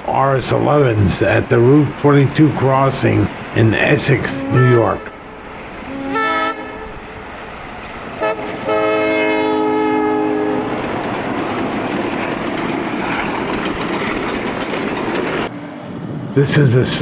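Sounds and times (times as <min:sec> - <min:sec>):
train passing: 0:00.0 - 0:17.0
locomotive air horn blasts: 0:01.2 - 0:10.8.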